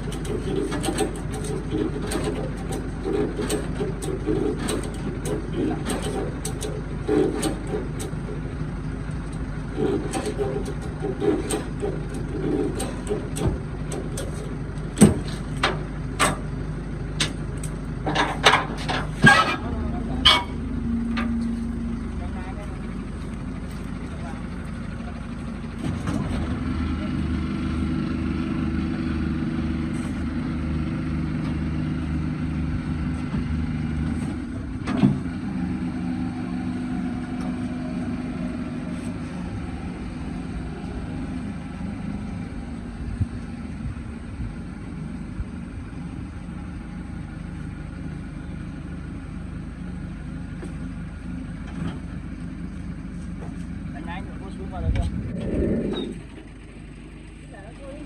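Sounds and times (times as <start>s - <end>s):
clunk: 0.0s - 8.5s, 9.2s - 16.5s, 17.2s - 21.7s, 33.2s - 35.4s, 51.6s - 52.2s
vehicle engine running: 0.0s - 58.0s.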